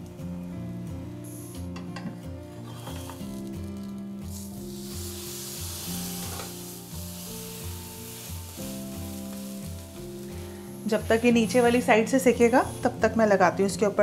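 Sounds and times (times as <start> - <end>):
background music with steady beat: 0.0 - 14.0
butter sizzling on grill pan: 2.8 - 11.9.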